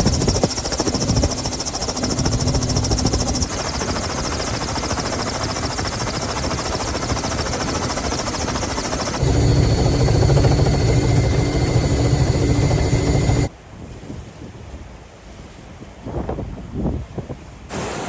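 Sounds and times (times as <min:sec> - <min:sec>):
loud machinery noise: 0:00.0 - 0:13.5
steady machine tones: 0:00.0 - 0:13.5.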